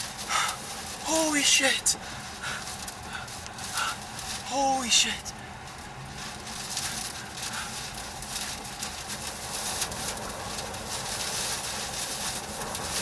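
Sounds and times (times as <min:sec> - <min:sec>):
sharp crackles and taps: 0:00.0 - 0:01.2, 0:01.9 - 0:04.5, 0:05.3 - 0:13.0.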